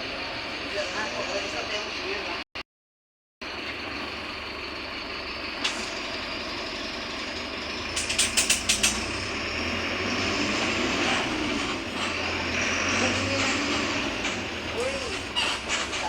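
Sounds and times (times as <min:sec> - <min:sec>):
bus diesel engine running: 0:00.0 - 0:02.5, 0:03.4 - 0:16.0
sharp click: 0:08.0 - 0:09.0
sharp clacks: 0:08.0 - 0:09.1.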